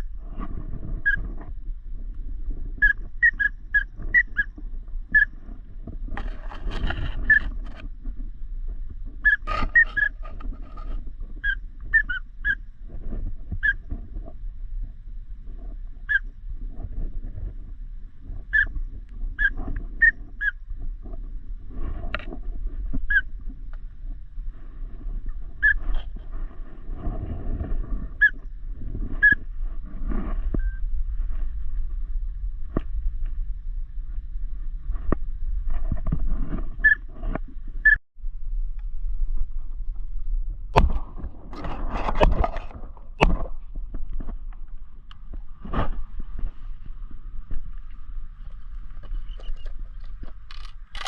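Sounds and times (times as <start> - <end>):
low rumble: 0.0 - 51.0
whistled duck calls: 2.8 - 4.5, 5.1 - 5.4, 9.2 - 10.2, 11.4 - 12.6, 13.6 - 13.8, 16.1 - 16.3, 18.5 - 18.7, 19.4 - 20.6, 23.1 - 23.3, 25.6 - 25.8, 29.2 - 29.4.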